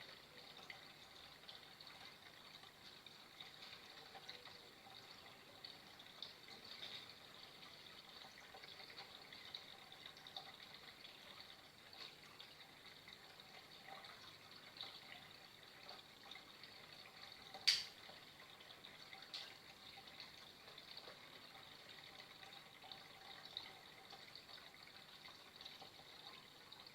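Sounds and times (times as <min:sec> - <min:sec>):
water trickling: 0:00.0 - 0:26.9
sharp click: 0:17.7 - 0:18.0.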